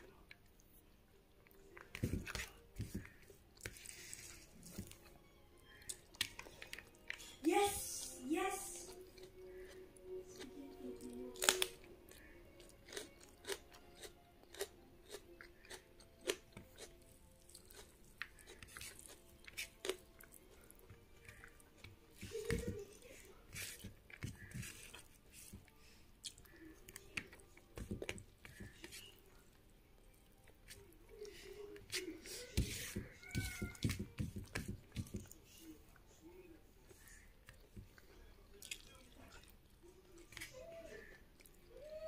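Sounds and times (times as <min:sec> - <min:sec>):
person chewing: 0:00.0 - 0:07.2, 0:08.9 - 0:22.4, 0:23.5 - 0:35.4, 0:36.9 - 0:41.7
fingers mixing rice on a plate: 0:12.1 - 0:25.7, 0:30.2 - 0:36.0.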